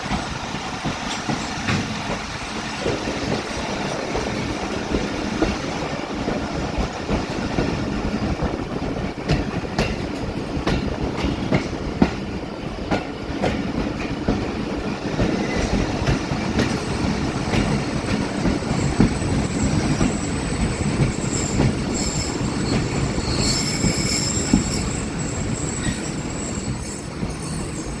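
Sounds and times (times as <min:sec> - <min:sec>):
train wheel squeal: 0:00.0 - 0:05.9, 0:15.0 - 0:28.0
train rumbling on track: 0:00.0 - 0:28.0.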